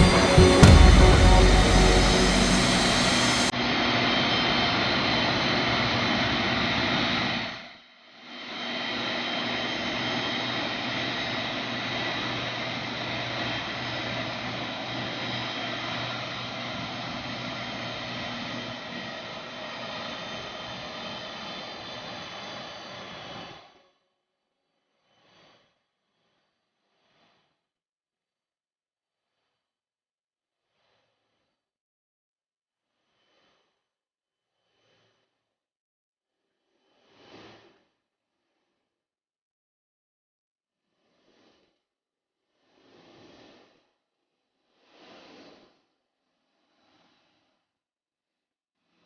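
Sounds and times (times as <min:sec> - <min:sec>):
jet engines whining: 0:00.0 - 0:03.5.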